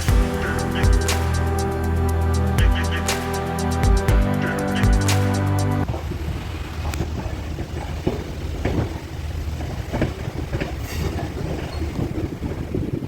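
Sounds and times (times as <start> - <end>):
music track: 0.0 - 5.8
train carriage rumble: 5.8 - 13.0.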